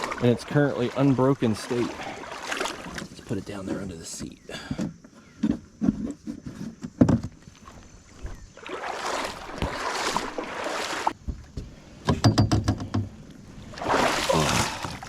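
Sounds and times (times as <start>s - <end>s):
knocks on kayak: 9.4s - 10.3s.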